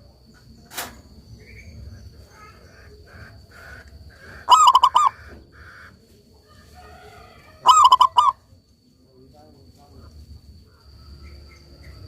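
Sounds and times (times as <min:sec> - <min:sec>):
dove cooing: 0:03.0 - 0:05.4, 0:07.6 - 0:08.4.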